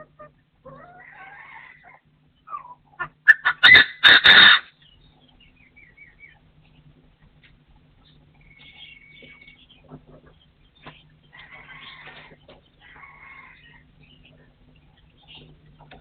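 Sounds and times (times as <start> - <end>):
partridge calling: 2.4 - 6.8.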